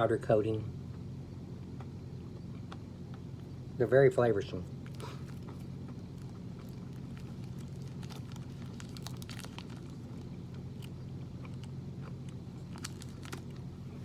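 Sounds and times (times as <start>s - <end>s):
low hum: 0.0s - 14.0s
person chewing crunchy bar: 1.7s - 3.5s, 4.7s - 14.0s.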